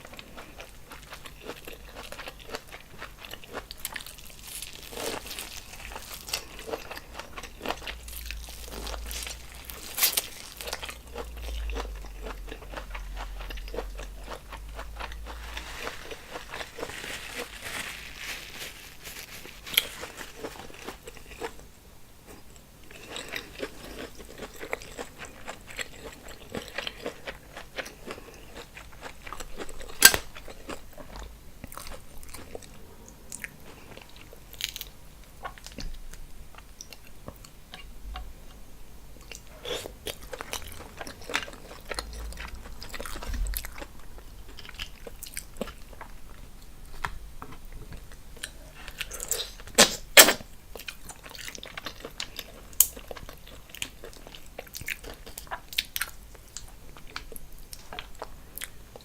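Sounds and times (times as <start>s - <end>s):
person chewing and biting: 0.0s - 18.1s, 22.3s - 37.9s, 39.2s - 46.2s.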